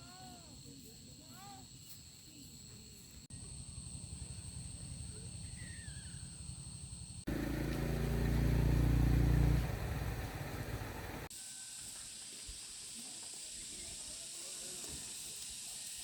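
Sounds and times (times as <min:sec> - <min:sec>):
high insect drone: 0:00.0 - 0:10.6, 0:11.2 - 0:16.0
loud engine: 0:07.3 - 0:11.3
small engine running: 0:07.3 - 0:11.3.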